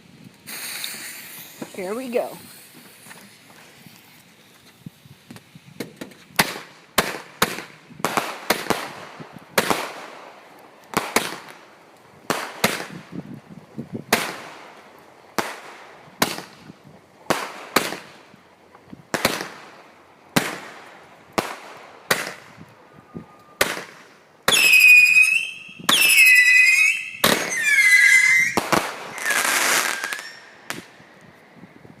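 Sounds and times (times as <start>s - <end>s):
firework whistles wavering in pitch: 0.4s - 4.2s, 24.5s - 30.9s
firework shots and bangs: 5.8s - 11.6s, 12.2s - 13.1s, 14.1s - 14.7s, 15.3s - 18.3s, 19.1s - 22.6s, 23.6s - 30.9s.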